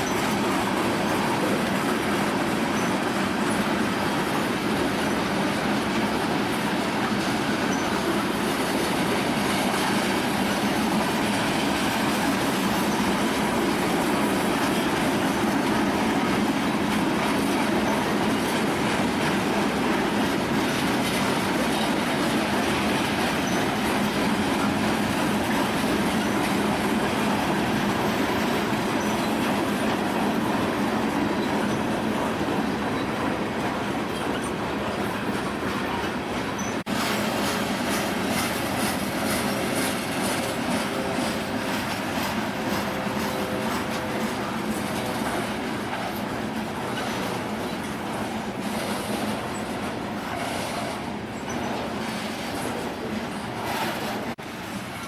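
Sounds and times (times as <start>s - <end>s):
freight train cars rolling past: 0.0s - 55.0s.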